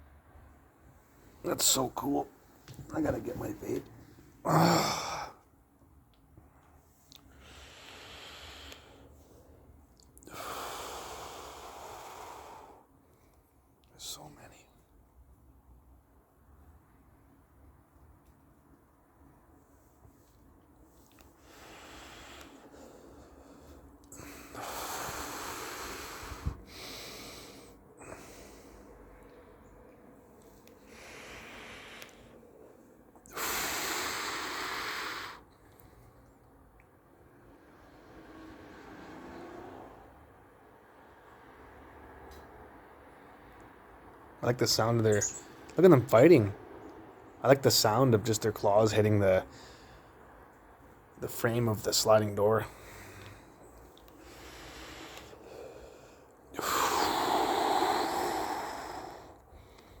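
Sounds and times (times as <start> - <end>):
person breathing out heavily: 4.4 - 5.4, 21.4 - 29.1, 30.8 - 32.5, 33.3 - 35.4, 52.7 - 53.6, 54.2 - 60.0
person blowing out breath: 33.3 - 35.4, 54.2 - 60.0
person breathing in softly: 52.7 - 60.0.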